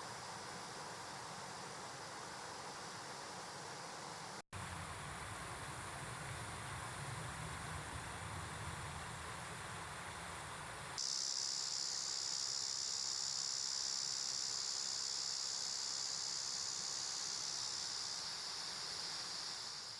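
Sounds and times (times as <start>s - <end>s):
insects droning: 0.0s - 19.9s.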